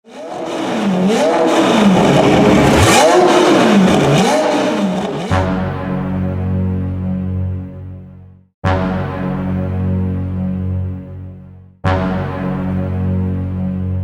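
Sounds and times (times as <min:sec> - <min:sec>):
car engine revving in blips: 0:00.0 - 0:05.6.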